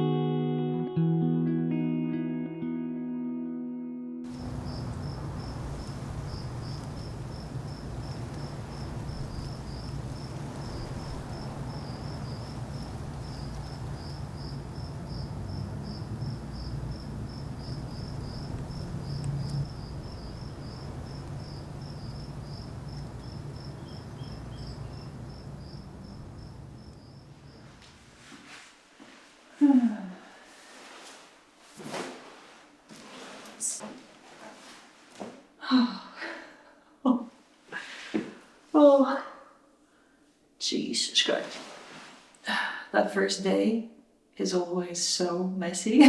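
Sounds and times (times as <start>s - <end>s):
crickets chirping: 4.3s - 28.2s.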